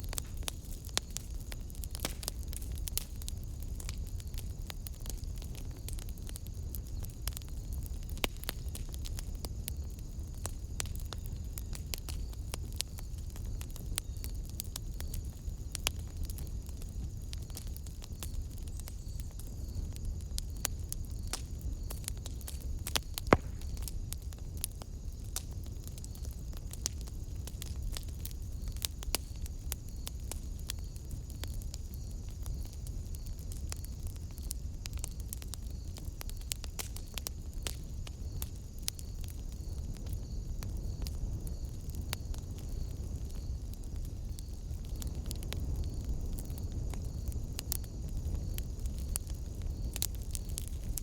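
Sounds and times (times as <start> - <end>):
low rumble of flames: 0.0 - 51.0
wood fire crackling: 0.0 - 51.0.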